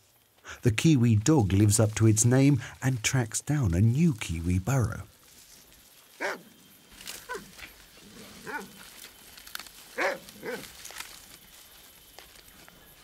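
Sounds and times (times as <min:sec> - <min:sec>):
dog barking: 0:06.2 - 0:06.4, 0:08.4 - 0:08.8, 0:10.0 - 0:10.7.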